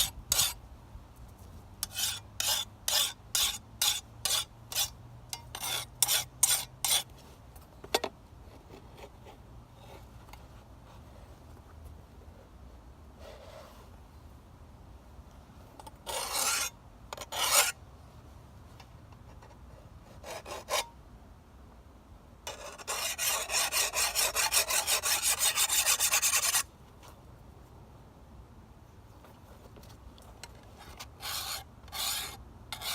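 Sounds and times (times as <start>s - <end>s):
file scraping blade: 0.0s - 0.6s, 1.8s - 7.1s, 16.1s - 17.8s, 20.2s - 20.9s, 22.5s - 26.7s, 30.8s - 32.9s.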